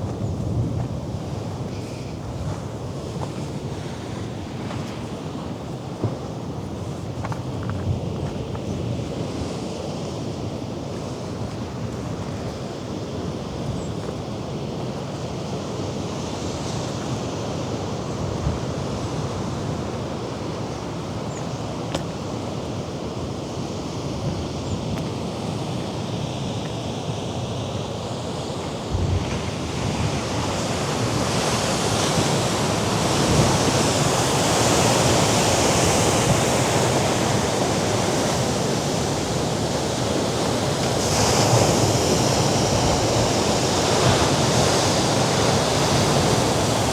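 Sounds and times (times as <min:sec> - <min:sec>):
wind: 0:00.0 - 0:46.9
sea waves breaking on rocks: 0:28.9 - 0:46.9.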